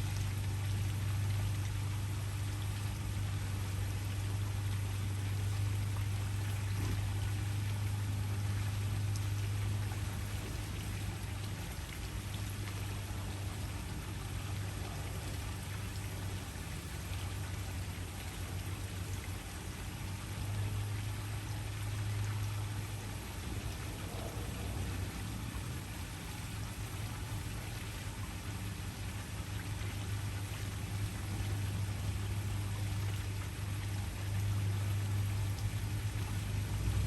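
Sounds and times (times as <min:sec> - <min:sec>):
low hum: 0:00.0 - 0:37.0.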